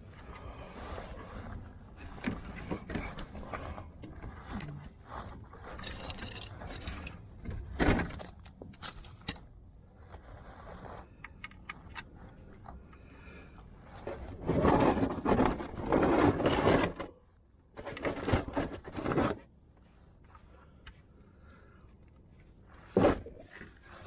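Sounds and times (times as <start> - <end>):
metal tools clinking and scraping: 5.8 - 7.2.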